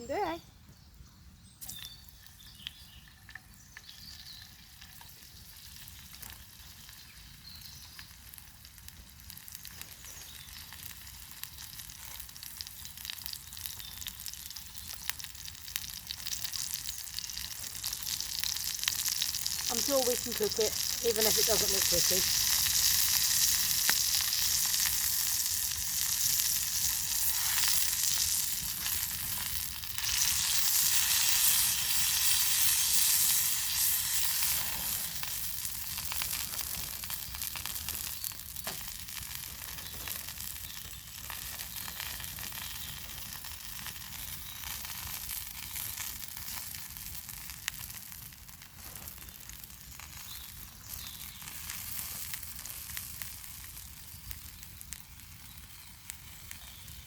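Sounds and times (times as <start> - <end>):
food sizzling in a pan: 2.4 - 57.0.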